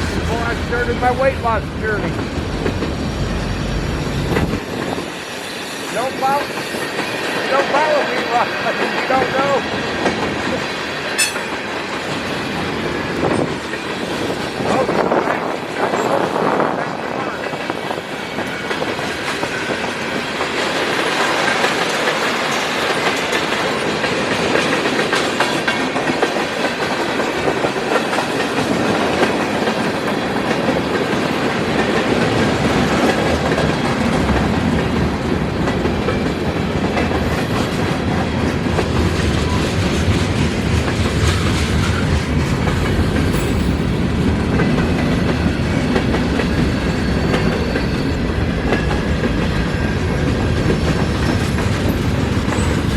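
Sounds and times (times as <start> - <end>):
deep train rumble: 0.0 - 52.9
train wheels clattering over rail joints: 17.3 - 52.9.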